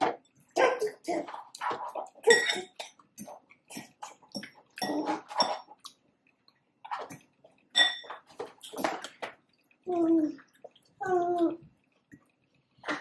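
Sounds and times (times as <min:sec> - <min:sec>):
wet chewing and mouth smacks: 0:10.4 - 0:11.0.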